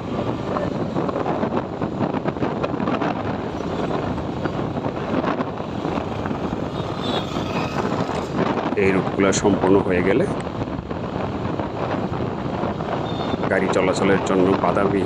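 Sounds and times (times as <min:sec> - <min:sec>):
road noise: 0:00.0 - 0:15.0
wind rushing over microphone: 0:00.0 - 0:15.0
motorcycle engine: 0:01.9 - 0:08.7.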